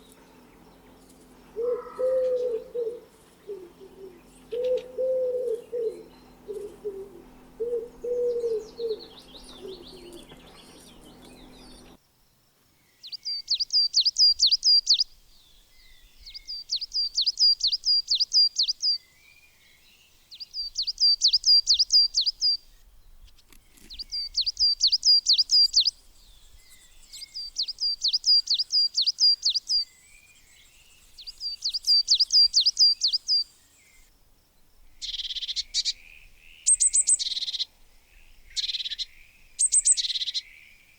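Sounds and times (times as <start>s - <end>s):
bird cooing: 0.0s - 12.0s
songbird singing high notes: 13.0s - 15.1s, 15.7s - 19.0s, 20.3s - 22.6s, 23.9s - 33.6s, 35.0s - 37.7s, 38.6s - 40.5s.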